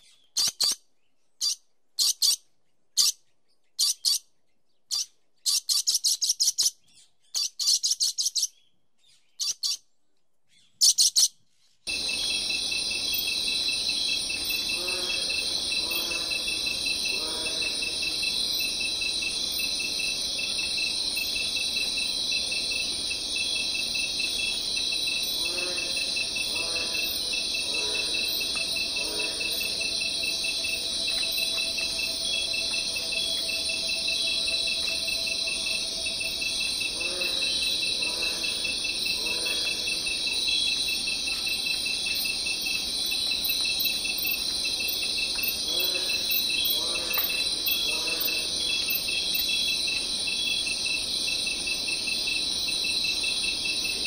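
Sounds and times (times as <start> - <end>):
lower animal calls: 11.9 - 40.7
crickets and insects chirping: 11.9 - 54.0.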